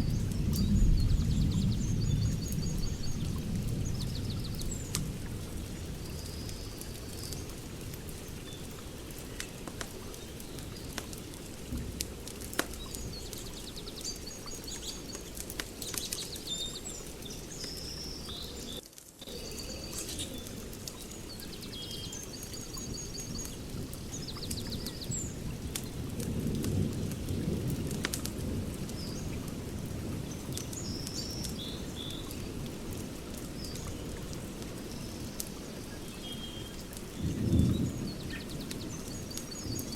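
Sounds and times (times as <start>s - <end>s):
birds chirping and trilling: 0.0s - 11.4s, 12.7s - 25.8s, 33.6s - 39.9s
wood fire crackling and popping: 0.0s - 39.9s.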